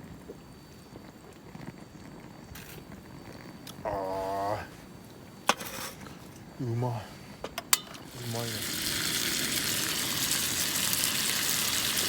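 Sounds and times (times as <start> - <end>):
man sighing ahh: 3.9 - 4.7.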